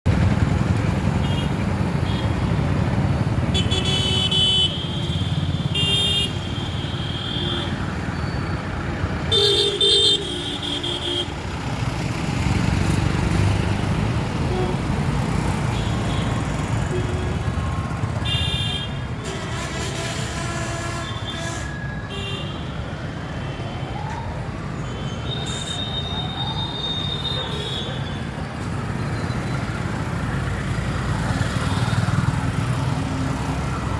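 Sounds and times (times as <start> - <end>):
low rumble of vehicle engines: 0.1 - 22.1
vehicle horns honking: 3.5 - 7.8, 9.3 - 11.4, 18.2 - 22.6.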